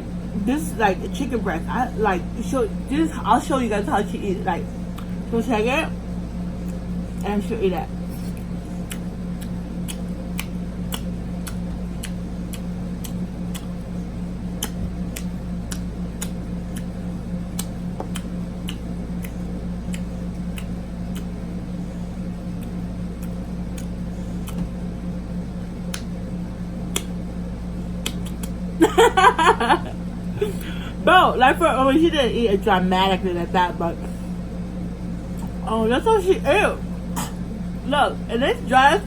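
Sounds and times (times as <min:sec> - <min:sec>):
air conditioner hum: 0:00.0 - 0:39.0
chewing mouth clicks: 0:08.2 - 0:13.7, 0:14.6 - 0:16.9, 0:17.5 - 0:21.3, 0:22.6 - 0:24.6, 0:26.9 - 0:27.1, 0:28.0 - 0:28.6.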